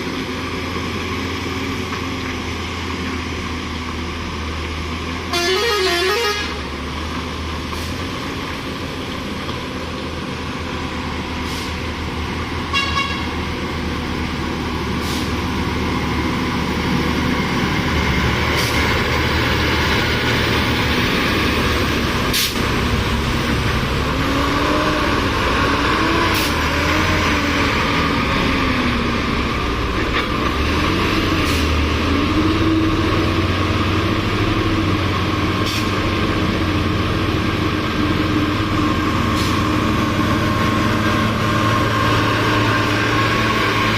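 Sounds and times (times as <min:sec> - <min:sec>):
road noise: 0:00.0 - 0:43.9
truck engine running: 0:00.0 - 0:43.9
short horn toots: 0:05.3 - 0:06.6, 0:12.7 - 0:13.3.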